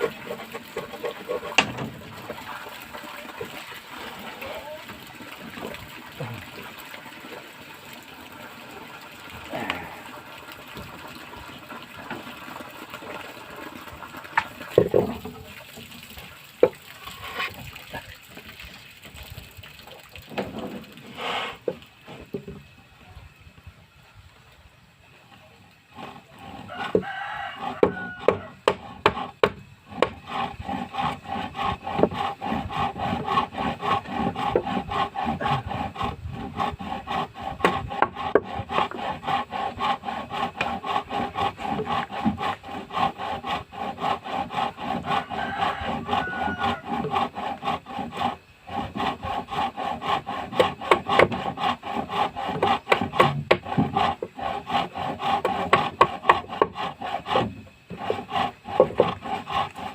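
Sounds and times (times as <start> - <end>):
tool rasping on wood: 0.0 - 2.6, 14.8 - 15.4, 25.9 - 59.9.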